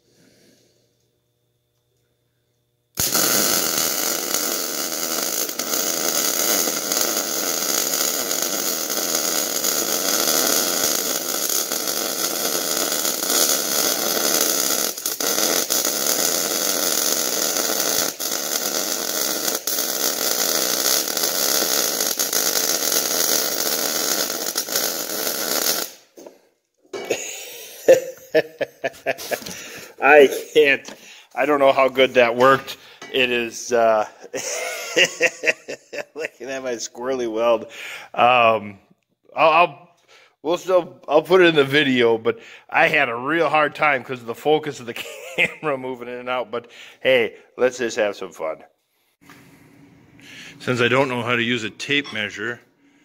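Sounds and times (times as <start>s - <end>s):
welding arc crackling hiss: 3.0s - 26.4s, 27.1s - 37.6s.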